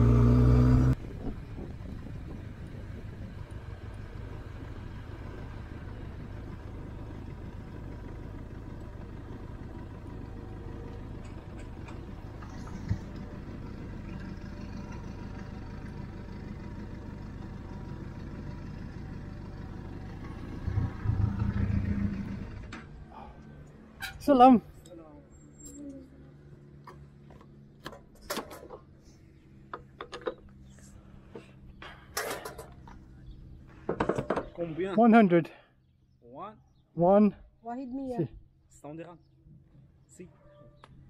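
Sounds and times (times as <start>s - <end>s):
motorcycle engine rumbling: 0.0s - 34.9s.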